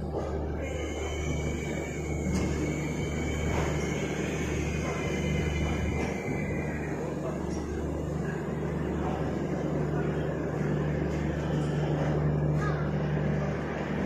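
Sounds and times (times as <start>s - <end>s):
constant low hum: 0.0s - 14.0s
train rumbling: 0.0s - 14.0s.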